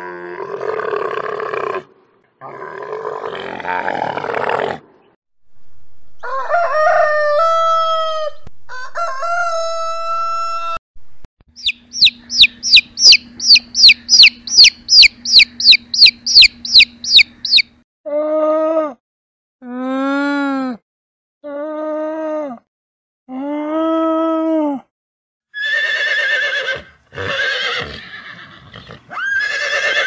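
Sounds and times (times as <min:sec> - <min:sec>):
rooster crowing: 0:06.2 - 0:10.8
steady low hum: 0:11.0 - 0:17.8
baby chicks peeping: 0:11.6 - 0:17.7.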